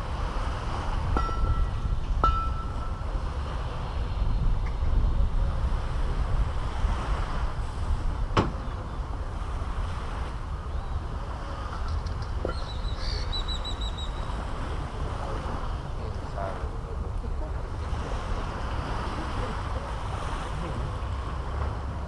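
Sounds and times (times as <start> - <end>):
sea waves washing on beach: 0.0 - 22.0
wind rumbling on microphone: 0.0 - 22.0
bird chirping: 12.5 - 14.3.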